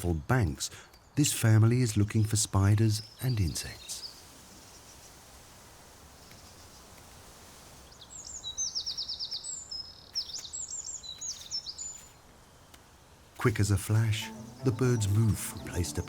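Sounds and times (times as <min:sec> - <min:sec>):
faint steady hiss: 0:00.0 - 0:16.0
plovers piping and trilling: 0:13.4 - 0:16.0.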